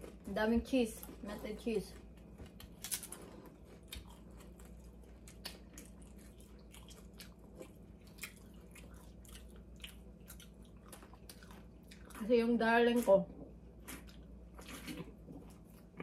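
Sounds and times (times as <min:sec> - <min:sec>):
person chewing crunchy chips: 0:00.0 - 0:16.0.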